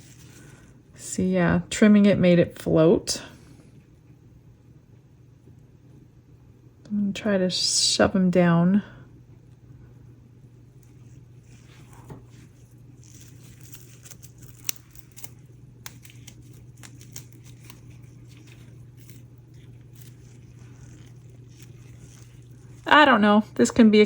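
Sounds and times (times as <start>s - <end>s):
clicks and crinkles of handling flowers: 0.0s - 0.8s, 10.7s - 23.8s
steady low hum: 0.0s - 24.0s.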